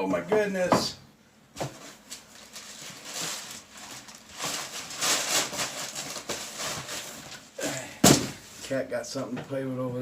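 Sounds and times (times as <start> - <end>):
packing material rustling: 1.7 - 7.7.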